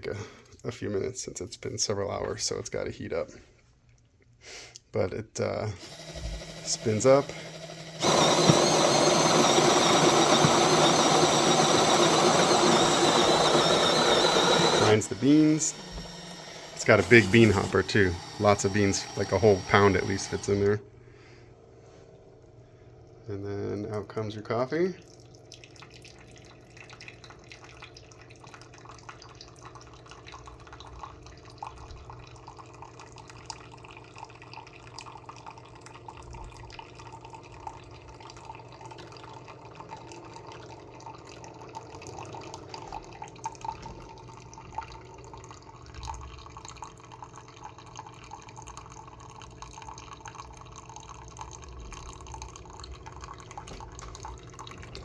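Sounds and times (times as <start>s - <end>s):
coffee trickling into cup: 5.8s - 20.8s, 25.0s - 55.0s
machine hum: 5.8s - 21.0s.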